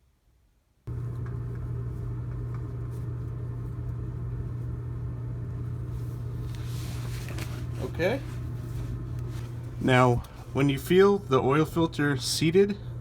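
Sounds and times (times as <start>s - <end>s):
low mechanical hum: 0.1s - 13.0s.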